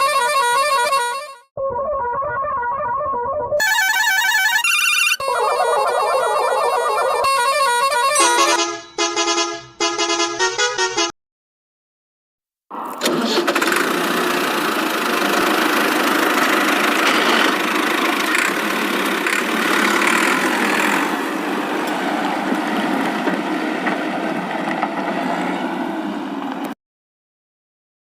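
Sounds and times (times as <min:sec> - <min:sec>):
toy truck engine running: 0:03.6 - 0:08.6, 0:12.7 - 0:22.0.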